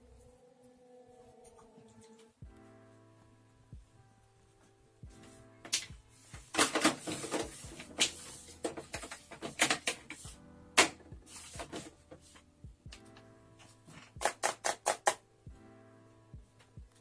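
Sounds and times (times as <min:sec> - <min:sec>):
soft background music: 0:00.0 - 0:17.0
objects being handled: 0:05.2 - 0:15.1.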